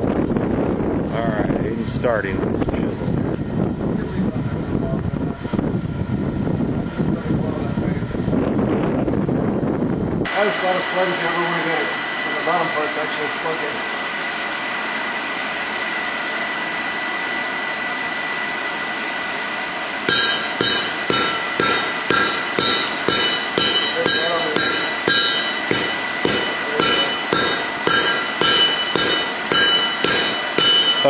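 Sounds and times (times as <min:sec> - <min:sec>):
forge blower air rushing: 0:00.0 - 0:31.0
hammer ringing on anvil: 0:20.1 - 0:31.0.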